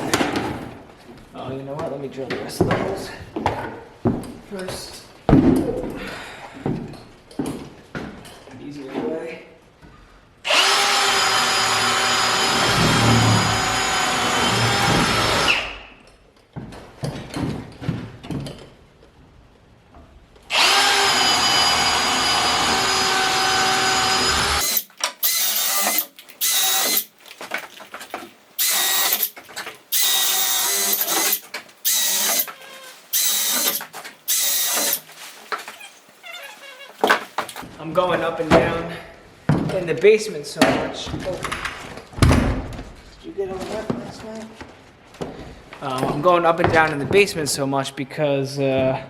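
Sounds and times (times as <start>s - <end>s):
power drill boring wood: 10.4s - 15.8s, 20.5s - 27.1s, 28.6s - 29.3s, 29.9s - 35.0s.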